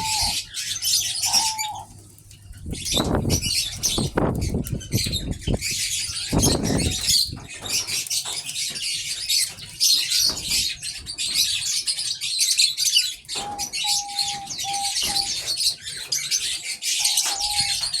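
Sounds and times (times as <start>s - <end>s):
doves cooing: 0.0s - 8.4s, 13.3s - 18.0s
small birds twittering: 0.0s - 18.0s.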